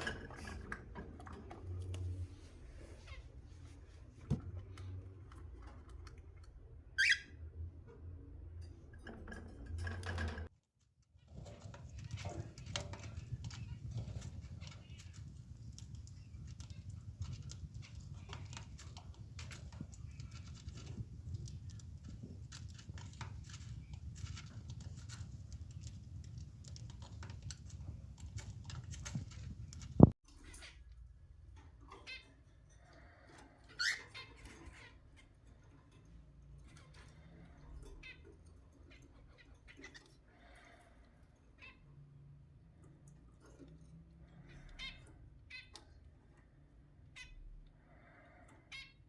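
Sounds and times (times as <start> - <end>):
cockatiel chirp: 7.0 - 7.4.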